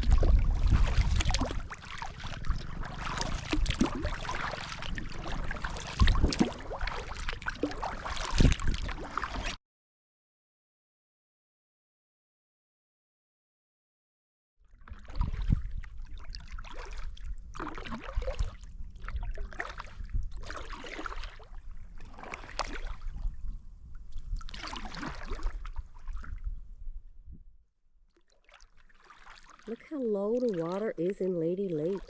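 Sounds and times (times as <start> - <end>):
steady low rumble: 0.0 - 7.5
kayak paddle splashing water: 0.0 - 9.6, 14.7 - 23.4, 24.1 - 26.4, 28.1 - 32.0.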